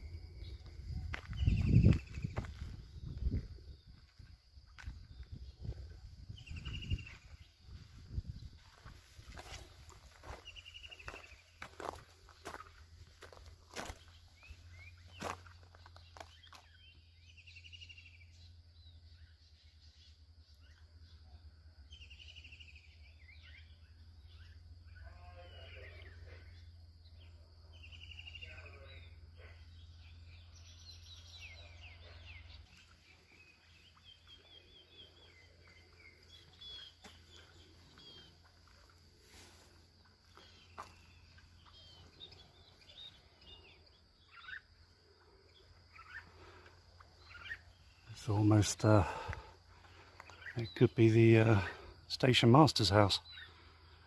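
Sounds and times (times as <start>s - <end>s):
high insect whine: 0.0s - 29.2s, 32.4s - 54.0s
footsteps: 0.6s - 5.4s, 6.7s - 14.6s, 35.6s - 42.2s
short bird calls: 21.9s - 52.0s.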